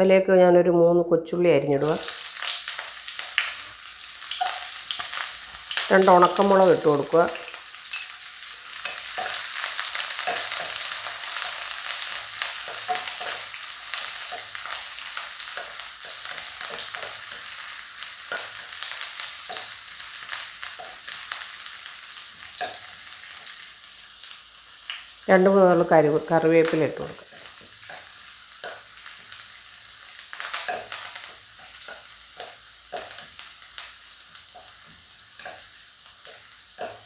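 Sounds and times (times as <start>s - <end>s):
food sizzling in oil: 1.7s - 37.0s
oil crackles: 1.8s - 22.6s.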